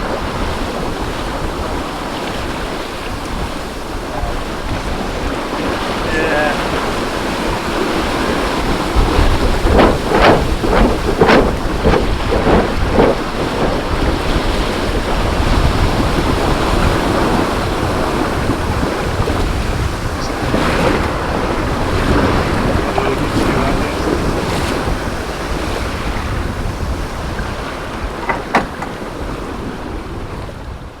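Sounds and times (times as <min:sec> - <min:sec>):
water washing: 0:00.0 - 0:30.3
outboard motor running: 0:00.0 - 0:30.6
wind noise on microphone: 0:00.0 - 0:31.0.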